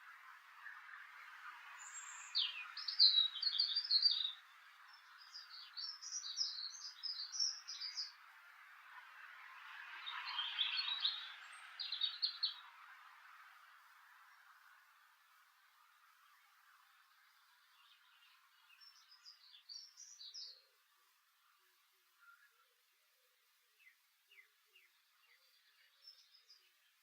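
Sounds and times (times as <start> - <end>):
background hiss: 0.0 - 27.0
songbird twittering: 0.2 - 8.2, 10.0 - 12.7, 16.2 - 20.7, 23.8 - 27.0.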